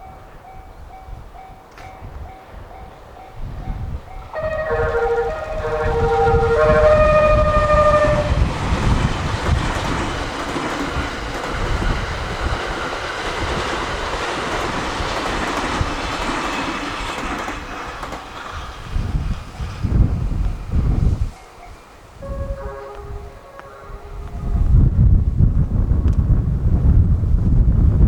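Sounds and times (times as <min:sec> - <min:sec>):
wind buffeting: 0:00.0 - 0:28.0
musical train horn: 0:04.3 - 0:09.6, 0:21.0 - 0:24.9
train wheels clattering over rails: 0:04.4 - 0:21.1.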